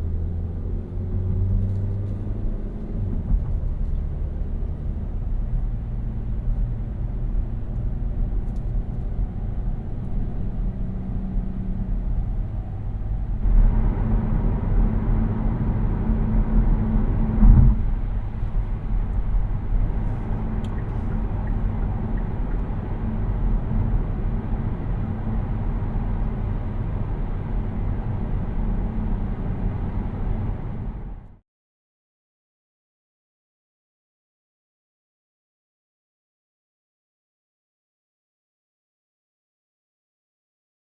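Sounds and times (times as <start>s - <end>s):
road and tyre rumble: 0.0s - 31.4s
thump: 17.4s - 17.9s.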